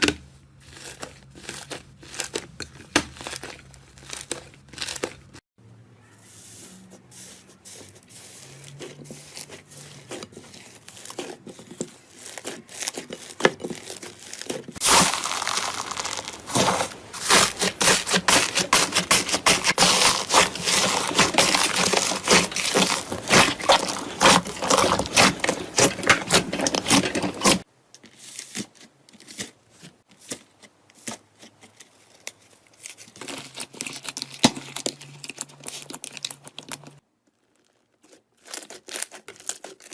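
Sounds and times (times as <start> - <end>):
slime squeezed by hand crackling: 14.8 - 25.9.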